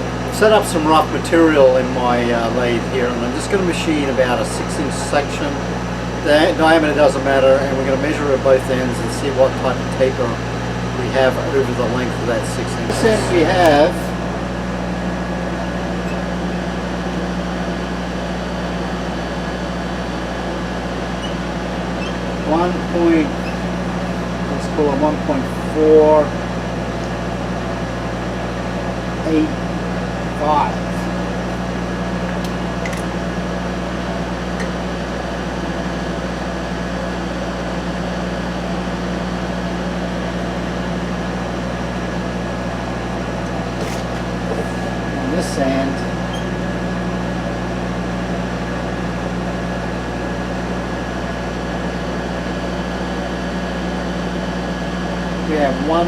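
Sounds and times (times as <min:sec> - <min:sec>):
mechanical hum with low drone: 0:00.0 - 0:56.0
electric motor humming: 0:10.5 - 0:14.8.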